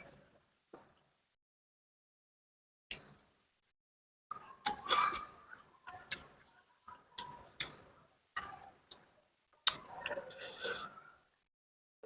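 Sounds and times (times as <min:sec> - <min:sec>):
slurping and chewing: 0:09.6 - 0:11.1.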